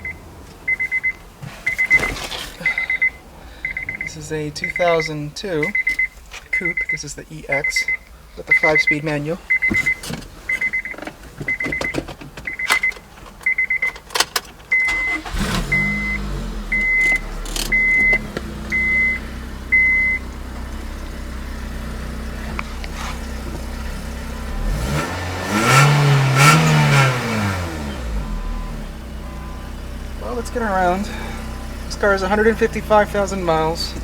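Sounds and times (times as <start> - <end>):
warning chime beeping: 0.0 - 10.0, 14.8 - 22.5, 23.7 - 34.0
car engine starting and idling: 0.0 - 34.0
engine revving: 14.9 - 34.0.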